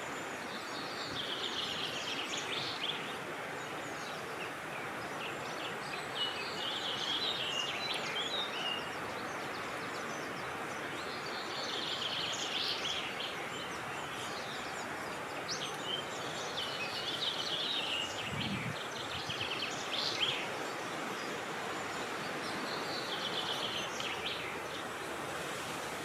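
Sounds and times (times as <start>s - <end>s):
birdsong: 0.0s - 26.0s
wind rushing: 18.2s - 19.3s.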